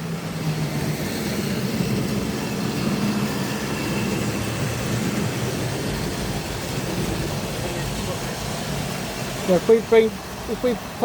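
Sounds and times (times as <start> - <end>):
train wheels on track: 0.0 - 11.0.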